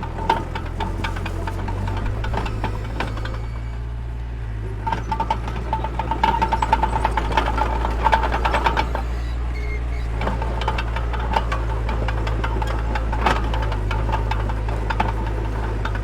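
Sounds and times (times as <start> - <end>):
metallic clatter of steel tracks: 0.0 - 3.9, 4.6 - 16.0
diesel engine under load: 0.0 - 16.0
squeak: 1.3 - 3.9, 4.8 - 11.1.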